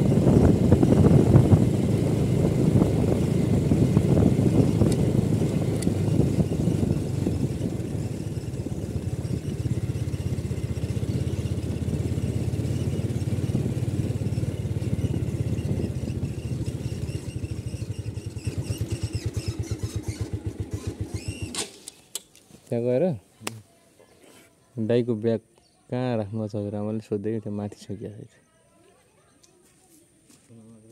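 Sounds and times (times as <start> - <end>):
motorcycle engine idling: 0.0 - 21.6.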